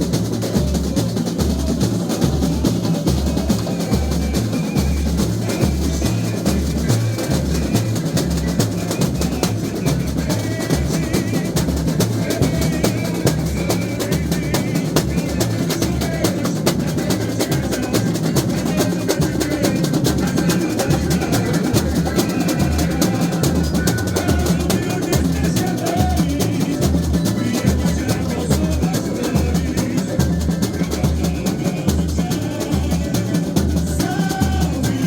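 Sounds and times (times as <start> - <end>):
small percussion: 0.0 - 35.0
snare drums: 0.0 - 35.0
surdo bass drums: 0.0 - 35.0.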